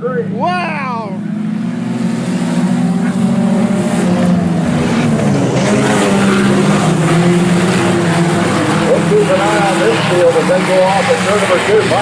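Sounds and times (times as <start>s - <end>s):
race car engines running hard: 0.0s - 12.0s.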